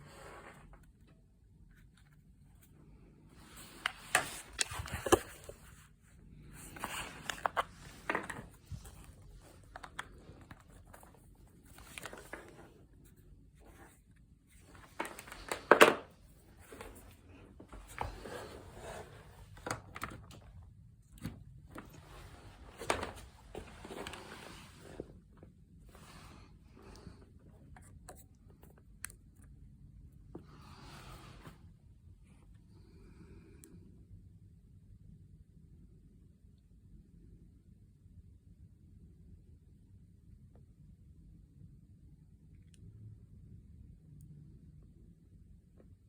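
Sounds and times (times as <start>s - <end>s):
rustling and scraping: 0.0s - 20.4s, 21.2s - 28.8s.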